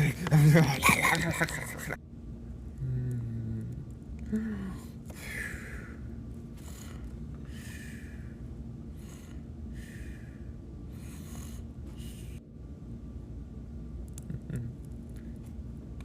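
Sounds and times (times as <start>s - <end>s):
steady low hum: 0.0s - 16.0s
person breathy puffs: 6.6s - 12.4s.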